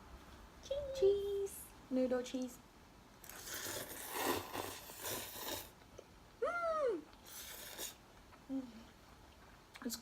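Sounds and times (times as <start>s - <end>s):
noodles being slurped: 3.2s - 5.8s, 7.2s - 8.0s.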